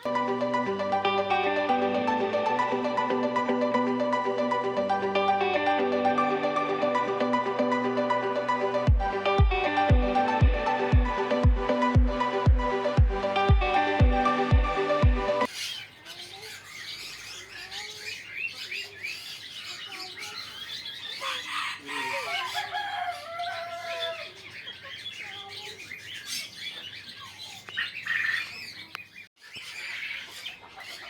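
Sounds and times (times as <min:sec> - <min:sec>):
pet birds chirping and calling: 0:15.4 - 0:31.0.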